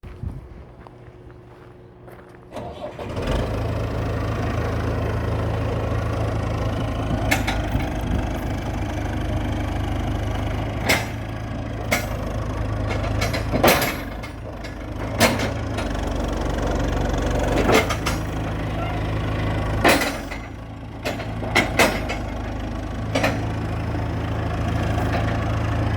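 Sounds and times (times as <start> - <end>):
diesel engine idling: 0.7 - 25.9
sharp clunks: 19.8 - 22.5.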